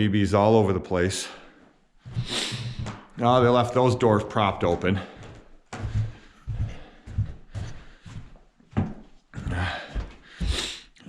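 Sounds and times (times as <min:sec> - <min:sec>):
footsteps thudding on floor: 0:02.0 - 0:03.2, 0:04.6 - 0:10.7.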